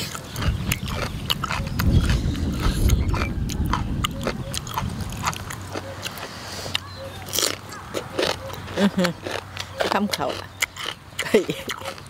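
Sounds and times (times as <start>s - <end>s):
crunching raw vegetables: 0.0s - 12.0s
irregular low rumble: 0.4s - 6.3s.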